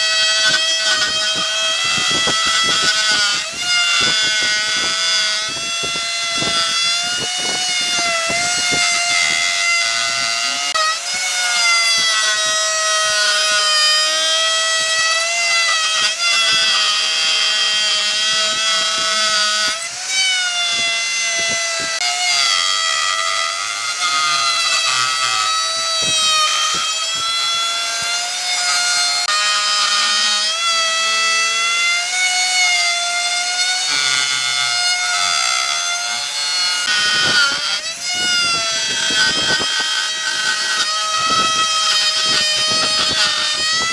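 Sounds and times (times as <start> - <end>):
power tool cutting hardwood: 0.0 - 43.9.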